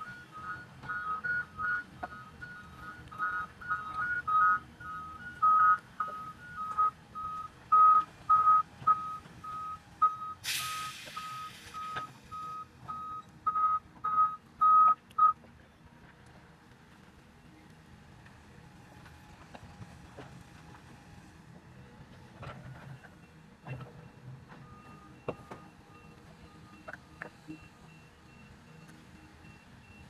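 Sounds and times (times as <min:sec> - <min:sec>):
higher back-up alarm beeping: 0:00.0 - 0:15.4
vehicle back-up alarm beeping: 0:00.0 - 0:15.4, 0:22.8 - 0:30.0
loud hiss burst: 0:10.4 - 0:11.8.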